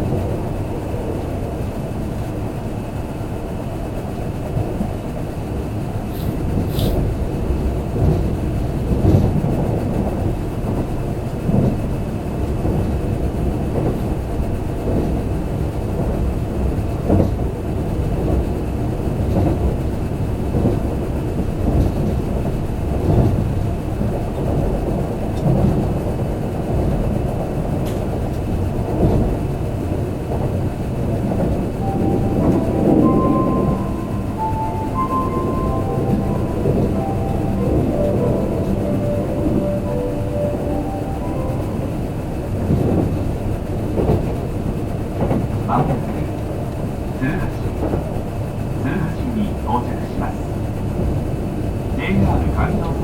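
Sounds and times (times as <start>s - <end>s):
train wheels rumbling on rail: 0.0s - 53.0s
chime melody: 31.8s - 43.0s.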